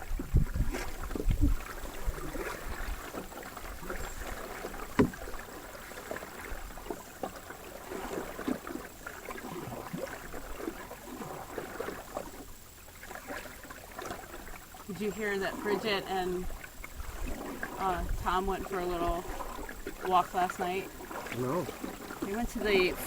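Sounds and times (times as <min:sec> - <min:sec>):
canoe paddle pulling through water: 0:00.0 - 0:23.0
splashes and drips against hull: 0:00.0 - 0:23.0.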